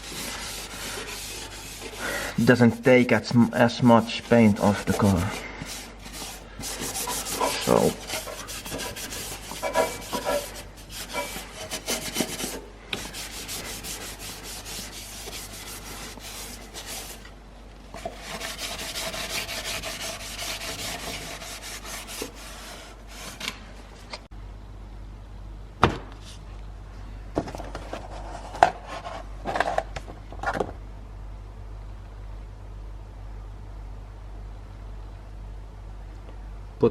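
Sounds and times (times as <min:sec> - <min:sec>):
hand sanding metal: 0:00.0 - 0:17.3, 0:18.0 - 0:23.5.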